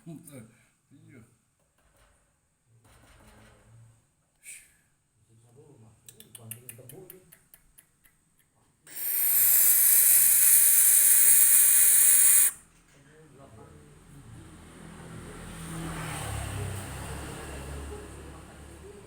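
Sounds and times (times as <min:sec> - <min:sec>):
owl chick hiss-screech: 0:08.9 - 0:12.6.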